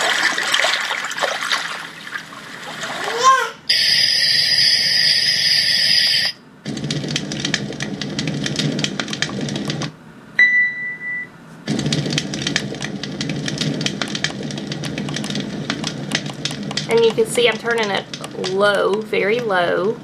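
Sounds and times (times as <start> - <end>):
crackling fire sound: 4.2 - 9.9, 11.7 - 19.5
short beep: 10.4 - 11.4
low rumble: 11.7 - 18.7.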